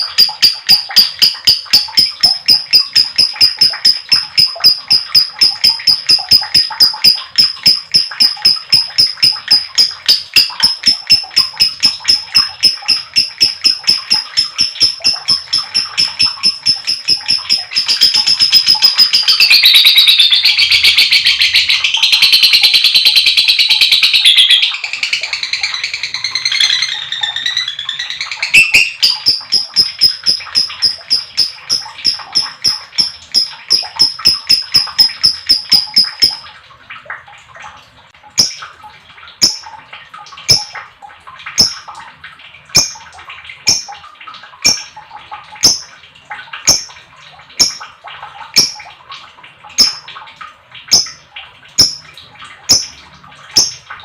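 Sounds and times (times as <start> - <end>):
lovebird chattering trill: 0.0 - 36.4
sharp high bird chirps: 0.0 - 36.4.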